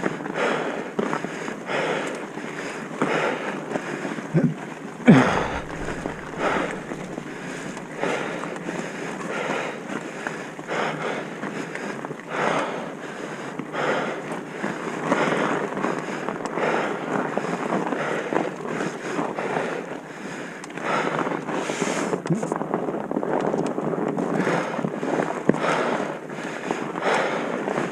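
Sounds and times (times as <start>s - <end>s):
wind buffeting microphone: 5.1s - 8.5s.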